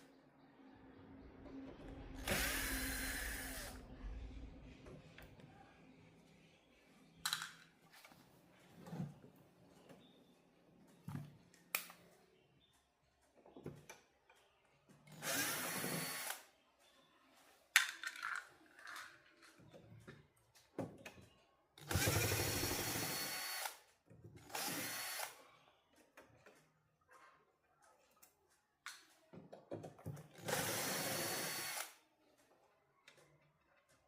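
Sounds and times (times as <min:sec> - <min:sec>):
power driver running: 0:02.2 - 0:03.8, 0:30.4 - 0:31.9.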